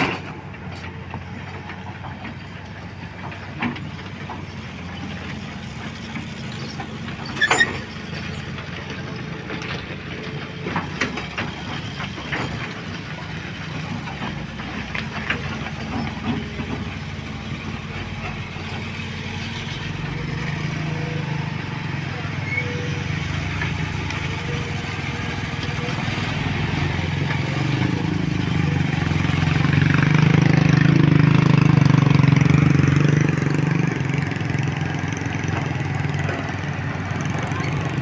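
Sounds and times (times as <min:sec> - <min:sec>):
sharp knocks and clanks: 0:00.0 - 0:19.5
heavy engine running: 0:00.0 - 0:38.0.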